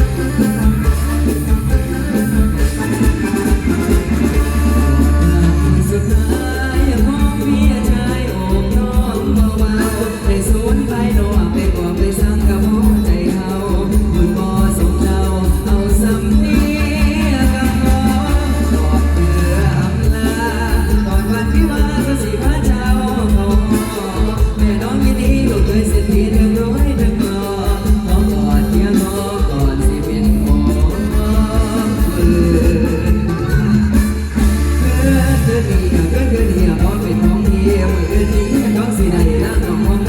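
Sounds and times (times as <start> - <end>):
live band with bass and drums: 0.0 - 40.0.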